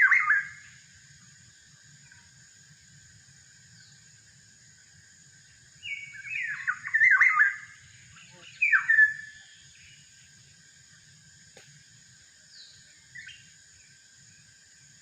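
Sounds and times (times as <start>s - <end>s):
bird fluty whistled calls: 0.0s - 0.7s, 5.8s - 10.0s
insects droning: 0.0s - 15.0s.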